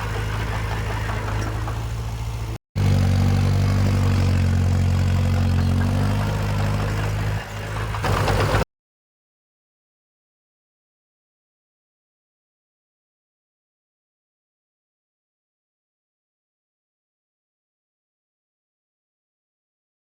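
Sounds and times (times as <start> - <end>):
heavy machinery diesel engine: 0.0 - 8.7.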